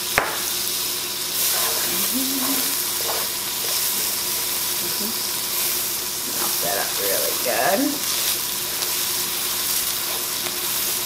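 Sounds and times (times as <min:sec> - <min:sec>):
butter and onions sizzling: 0:00.0 - 0:11.0
spatula stirring: 0:01.3 - 0:04.8.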